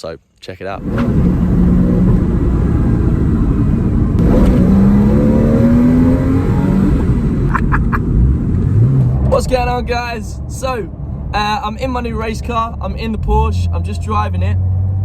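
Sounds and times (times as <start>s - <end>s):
car engine accelerating: 0.8s - 15.0s.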